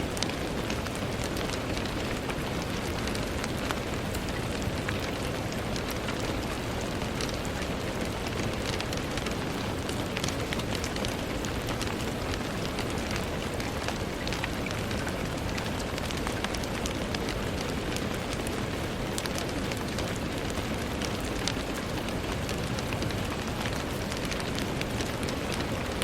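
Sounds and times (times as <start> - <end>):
rain on a window: 0.0 - 26.0.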